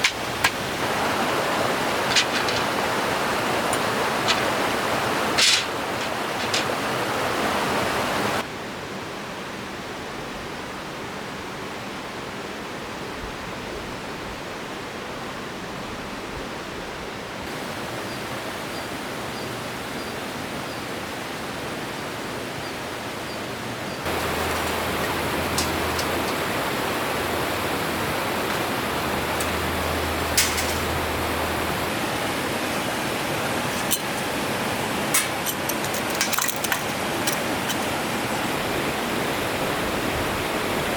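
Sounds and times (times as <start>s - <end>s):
steady rushing noise: 0.0s - 8.4s, 24.0s - 40.9s.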